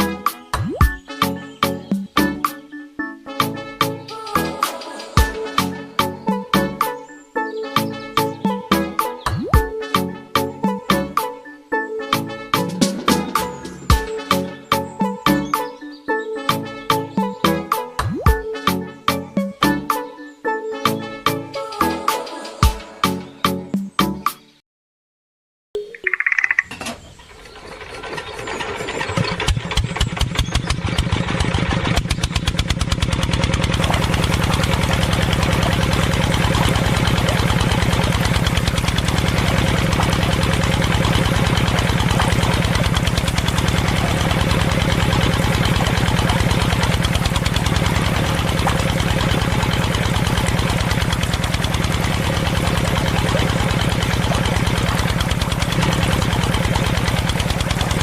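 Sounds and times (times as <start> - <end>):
small engine starting and idling: 26.2 - 58.0.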